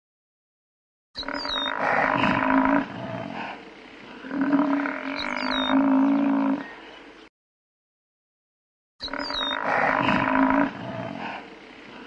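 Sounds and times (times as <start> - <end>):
buffalo bellowing: 1.2 - 6.8.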